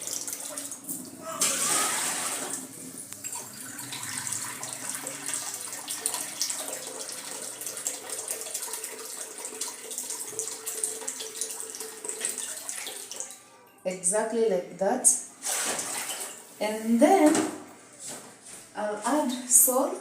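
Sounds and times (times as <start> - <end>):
water pouring into container: 0.0 - 13.4.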